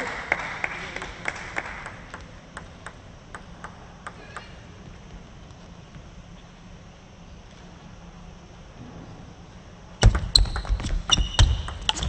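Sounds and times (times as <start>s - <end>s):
table tennis ball bouncing: 1.8s - 4.6s, 10.0s - 12.0s.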